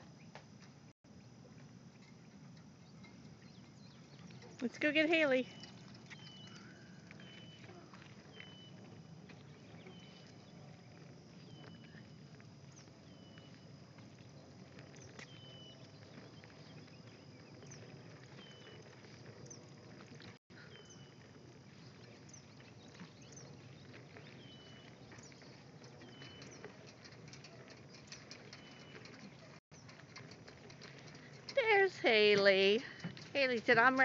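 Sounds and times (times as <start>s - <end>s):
bird calling: 3.5s - 10.6s
faint bird chirps: 5.4s - 19.6s.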